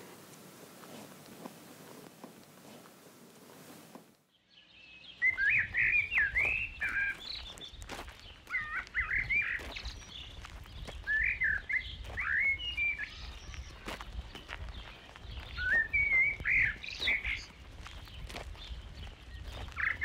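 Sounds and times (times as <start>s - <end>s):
songbird warbling: 4.4s - 7.6s, 8.5s - 10.2s, 15.5s - 17.6s.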